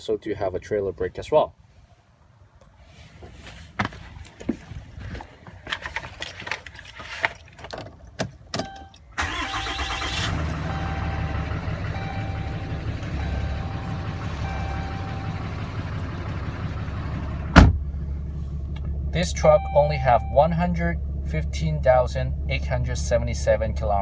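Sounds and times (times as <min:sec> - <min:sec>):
diesel engine cranking and idling: 0:09.0 - 0:24.0
dashboard chime tone: 0:11.9 - 0:15.5, 0:19.4 - 0:20.6.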